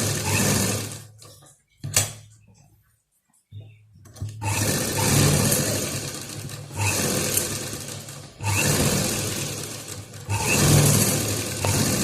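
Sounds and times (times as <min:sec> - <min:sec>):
electric sewing machine stitching: 0:00.0 - 0:01.1, 0:04.4 - 0:12.0.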